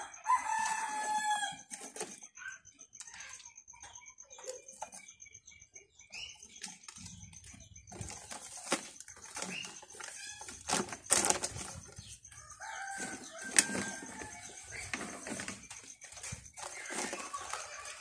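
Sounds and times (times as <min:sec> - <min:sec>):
chickens clucking: 0:00.0 - 0:18.0
faint steady high tone: 0:00.0 - 0:18.0
rustling: 0:07.9 - 0:12.2.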